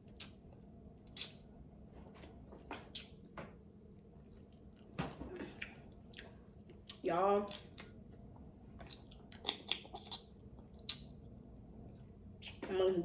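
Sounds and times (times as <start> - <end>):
wet chewing: 0.0 - 1.4, 2.2 - 3.2, 3.8 - 11.2.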